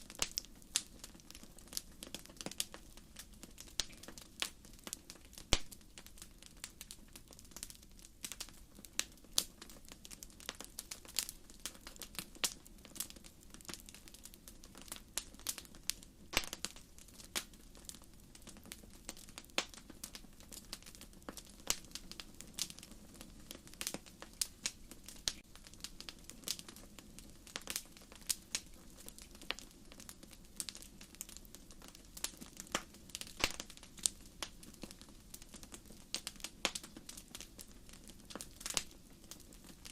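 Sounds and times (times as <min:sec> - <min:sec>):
low steady flame roar: 0:00.0 - 0:39.9
wood fire crackling and popping: 0:00.0 - 0:39.9.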